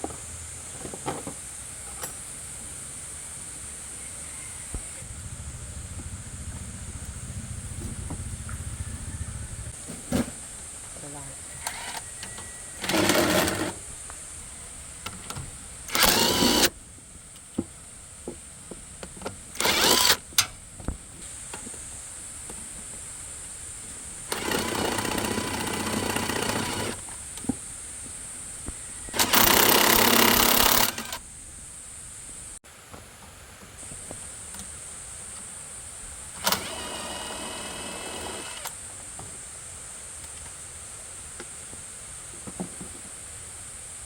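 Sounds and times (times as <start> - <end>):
loud mechanical noise bursts: 15.9 - 16.7, 19.6 - 20.2, 24.3 - 27.0, 29.2 - 31.2, 36.4 - 38.8.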